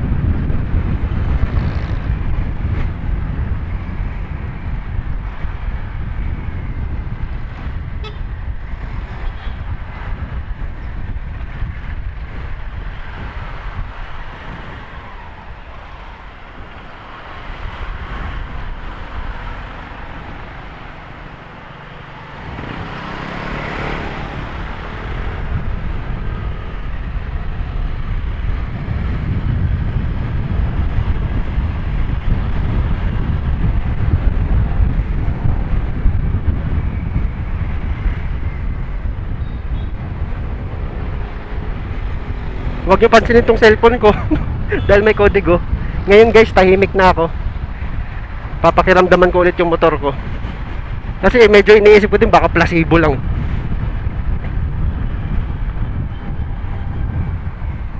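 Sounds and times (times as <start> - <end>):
road noise: 0.0 - 57.9
wind on microphone: 0.0 - 57.9.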